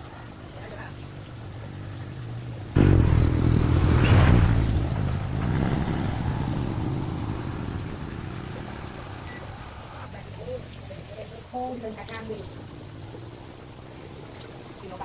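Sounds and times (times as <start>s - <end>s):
vehicle engine running: 0.9s - 11.2s.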